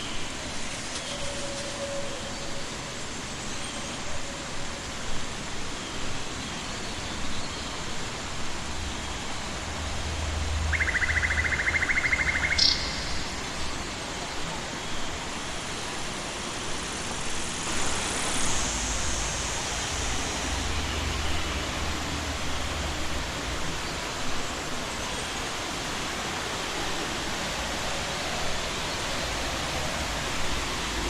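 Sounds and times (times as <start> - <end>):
waterfall rushing: 7.8 - 31.0.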